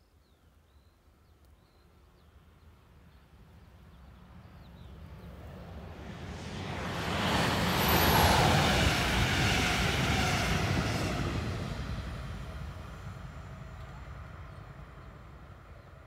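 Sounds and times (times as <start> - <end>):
train wheels rushing on rail: 6.0 - 15.6.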